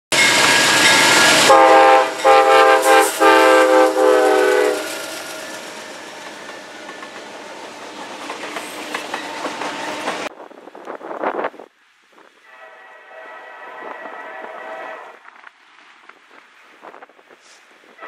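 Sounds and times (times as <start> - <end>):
locomotive rushing past: 0.1 - 10.4
train cars rumbling and clattering: 0.1 - 11.6
multi-note train air horn: 1.2 - 5.0, 12.4 - 15.2.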